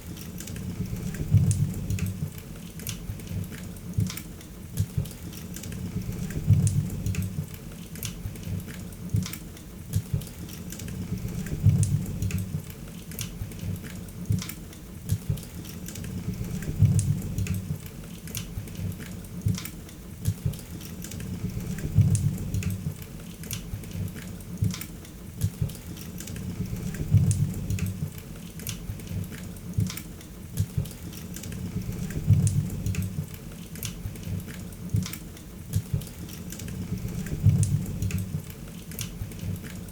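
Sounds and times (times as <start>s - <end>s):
low rumble of flames: 0.6s - 2.4s, 5.7s - 7.6s, 10.9s - 12.7s, 16.0s - 17.9s, 21.2s - 23.0s, 26.4s - 28.2s, 31.5s - 33.4s, 36.7s - 38.5s.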